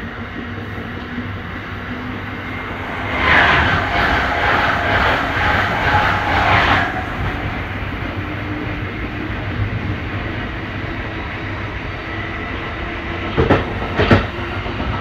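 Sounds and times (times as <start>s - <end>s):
train rumbling: 0.0s - 15.0s
rushing noise: 1.5s - 9.6s.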